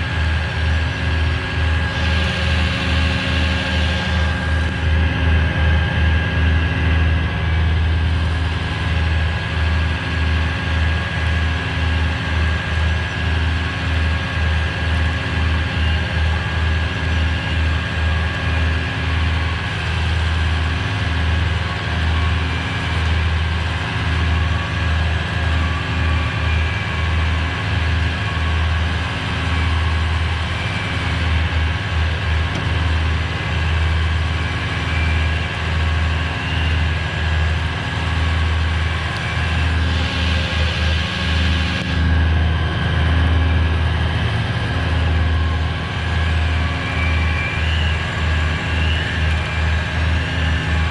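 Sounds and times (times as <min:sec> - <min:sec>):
hydraulic winch whine: 0:00.0 - 0:06.6, 0:07.5 - 0:50.9
truck engine idling: 0:00.0 - 0:09.8.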